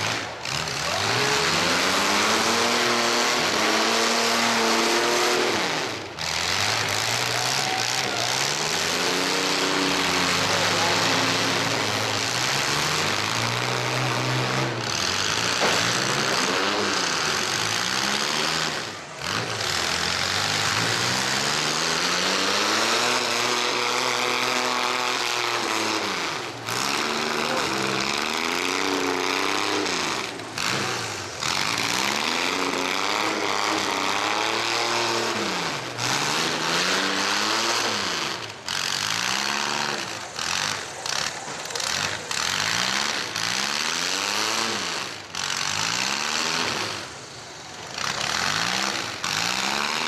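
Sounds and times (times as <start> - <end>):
truck engines revving: 0.0 - 50.0.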